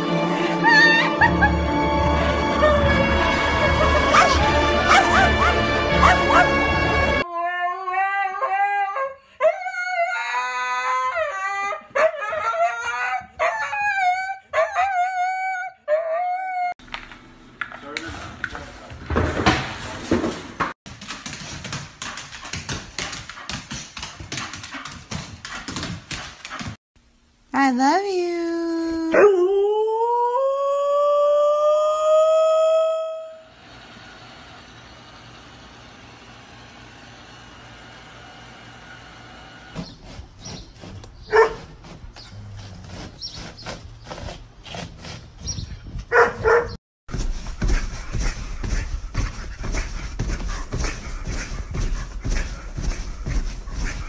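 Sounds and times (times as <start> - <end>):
dog barking: 4.0 - 6.6, 41.3 - 41.7, 46.1 - 46.8
dog's claws tapping and clicking: 20.9 - 26.8.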